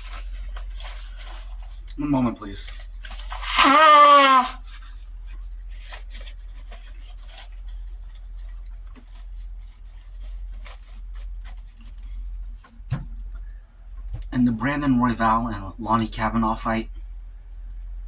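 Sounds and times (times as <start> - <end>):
loud vocal sound: 3.4 - 4.6.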